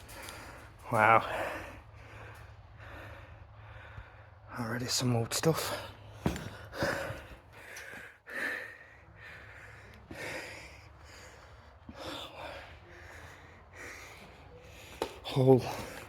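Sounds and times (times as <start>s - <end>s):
person breathing: 0.0s - 4.5s, 5.7s - 16.0s.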